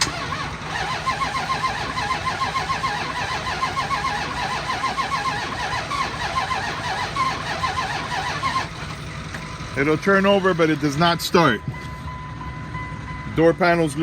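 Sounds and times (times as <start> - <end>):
engine cranking without starting: 0.0 - 11.6.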